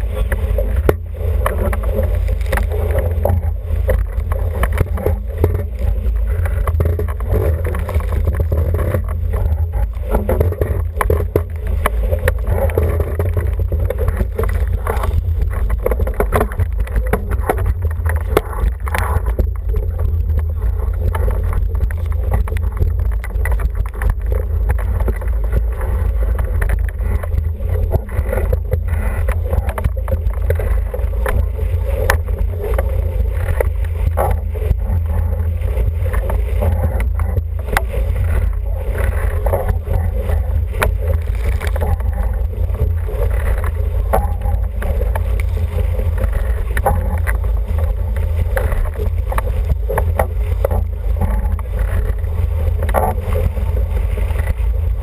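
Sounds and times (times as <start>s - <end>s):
water rushing along hull: 0.0s - 55.0s.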